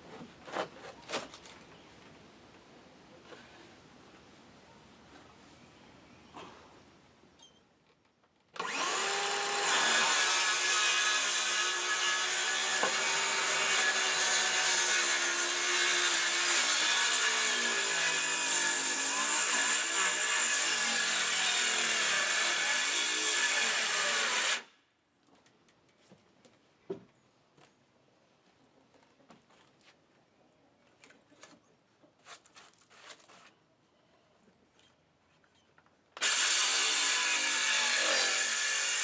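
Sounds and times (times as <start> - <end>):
electric power saw cutting wood: 8.6 - 24.7, 36.2 - 39.0.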